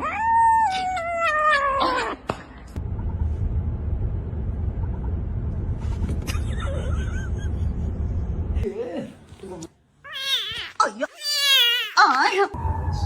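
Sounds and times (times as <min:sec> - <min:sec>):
steady low rumble: 0:02.8 - 0:08.7.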